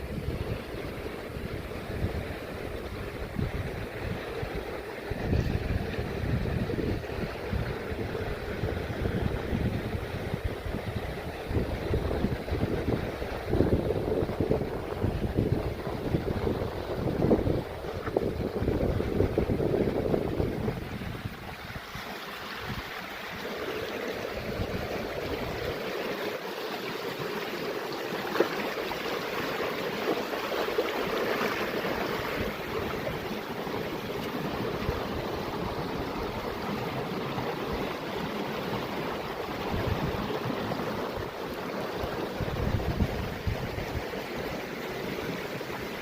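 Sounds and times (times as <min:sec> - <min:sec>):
wind buffeting microphone: 0:00.0 - 0:25.8, 0:38.7 - 0:46.0
water rushing: 0:00.0 - 0:46.0.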